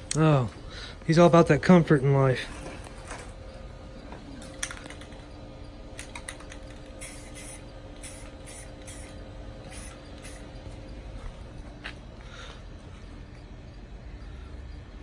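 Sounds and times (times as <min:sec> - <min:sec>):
steady low rumble: 0:00.0 - 0:15.0
faint clicks: 0:02.7 - 0:11.6
spray can hissing bursts: 0:05.9 - 0:10.8.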